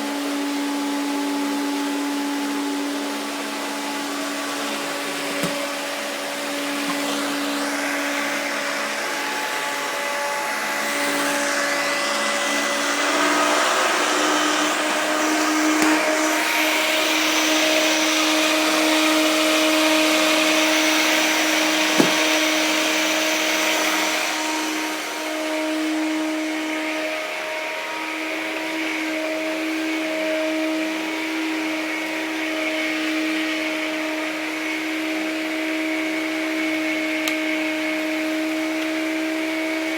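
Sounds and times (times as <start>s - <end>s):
vacuum cleaner running: 0.0s - 39.9s
small knocks: 22.0s - 22.2s.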